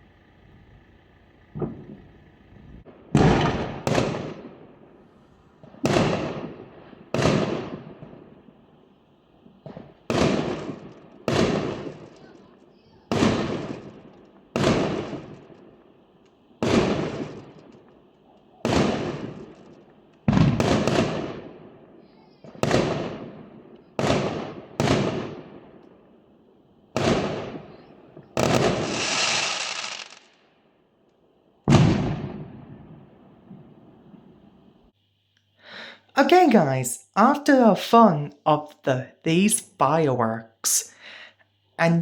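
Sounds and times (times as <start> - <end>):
fireworks crackling burst: 1.4 - 30.7
fireworks bangs: 1.5 - 8.8, 9.4 - 26.3, 26.9 - 30.6, 31.6 - 34.9.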